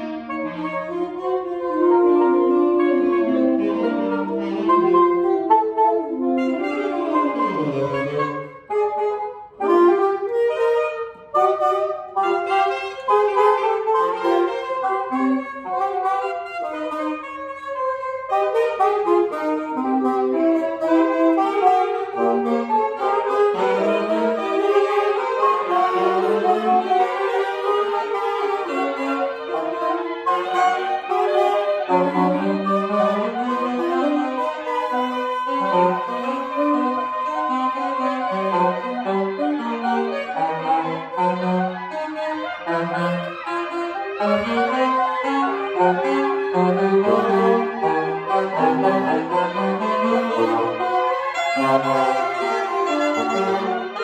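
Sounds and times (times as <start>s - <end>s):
free jazz saxophones and clarinet: 0.0s - 54.0s.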